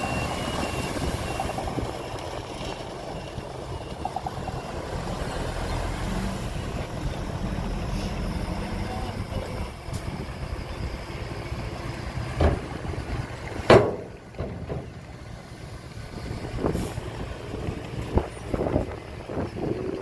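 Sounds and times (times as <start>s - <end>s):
heavy truck engines rumbling: 0.0s - 20.0s
sharp knocks: 13.7s - 14.9s.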